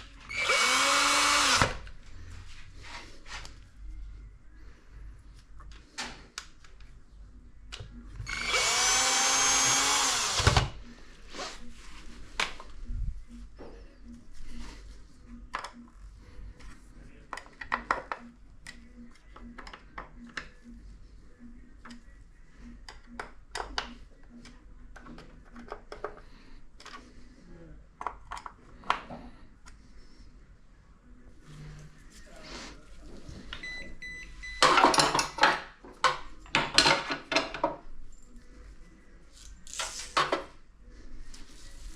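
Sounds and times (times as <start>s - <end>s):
electric screwdriver running: 0.3s - 1.8s, 8.2s - 10.7s.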